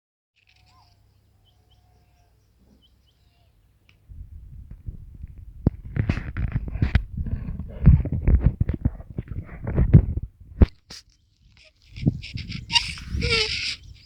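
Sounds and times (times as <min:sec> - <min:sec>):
faint bird chirps: 0:00.4 - 0:04.0
microphone handling noise: 0:04.0 - 0:14.0.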